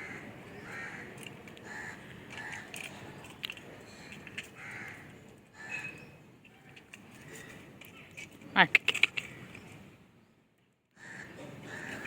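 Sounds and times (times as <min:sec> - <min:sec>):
crow cawing: 0:00.0 - 0:02.8, 0:04.6 - 0:05.9, 0:11.0 - 0:12.0.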